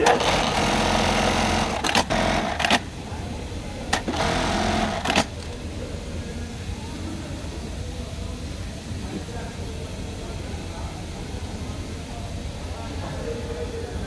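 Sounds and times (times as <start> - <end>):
industrial sewing machine stitching: 0.0 - 2.8, 3.9 - 5.3.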